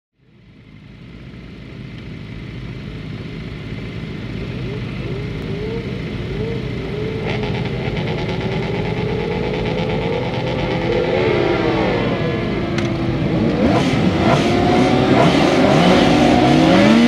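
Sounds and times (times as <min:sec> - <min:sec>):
motorcycle engines idling and revving: 0:00.2 - 0:17.0
rough engine note at high revs: 0:04.2 - 0:17.0.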